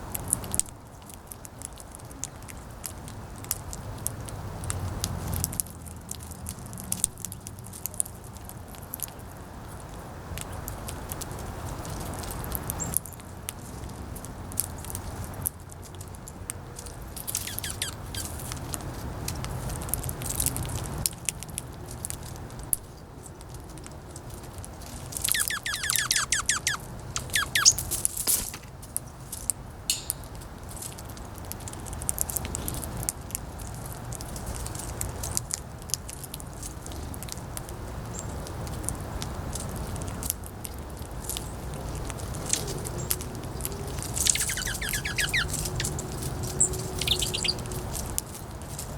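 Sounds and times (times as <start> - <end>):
clicks of pecking and cracking seeds: 0.0 - 48.9
bird chirping: 17.2 - 18.4, 25.2 - 28.0, 29.9 - 30.6, 43.9 - 47.8.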